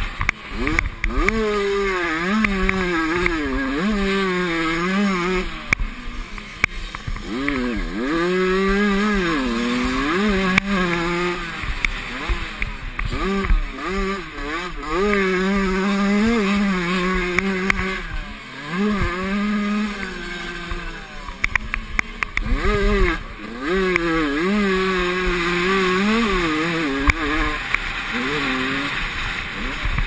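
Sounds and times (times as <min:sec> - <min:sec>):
motorcycle engine revving: 0:00.0 - 0:30.0
sharp clicks: 0:00.2 - 0:01.4, 0:05.7 - 0:07.8, 0:19.9 - 0:23.2.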